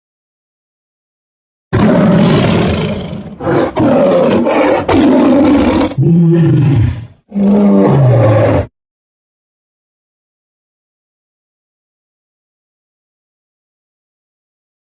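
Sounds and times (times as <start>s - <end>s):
tiger roaring: 1.8s - 8.7s.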